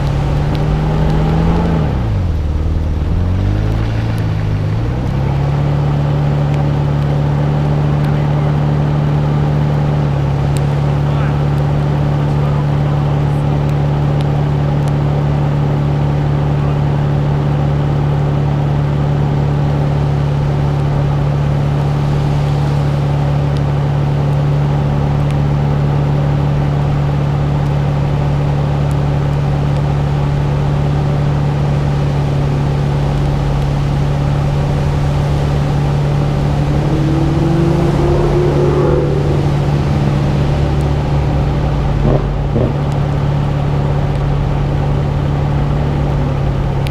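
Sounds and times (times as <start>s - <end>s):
rising whine: 0.0s - 15.0s, 31.0s - 46.9s
car engine running: 0.0s - 46.9s.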